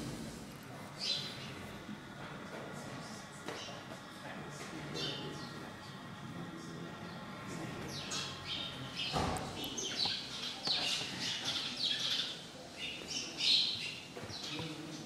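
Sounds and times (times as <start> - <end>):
small birds chirping: 1.0 - 1.7, 4.8 - 15.0.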